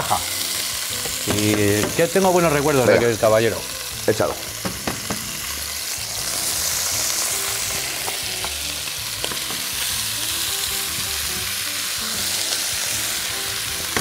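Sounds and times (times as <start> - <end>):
meat sizzling in hot oil: 0.0 - 14.0
utensil tapping a pan: 1.0 - 2.2, 4.6 - 5.4.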